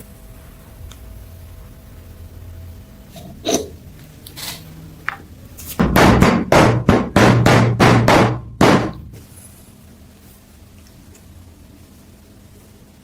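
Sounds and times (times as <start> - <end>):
scattered knocks: 5.8 - 9.1.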